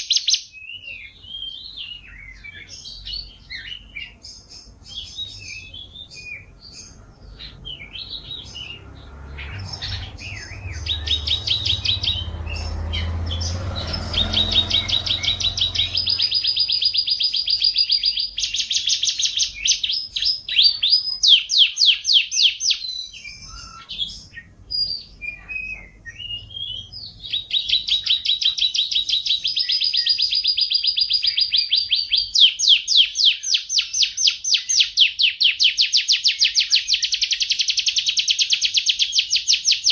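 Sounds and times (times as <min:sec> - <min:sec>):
canary singing trills: 0:00.0 - 0:39.9
low rumble: 0:07.0 - 0:17.0.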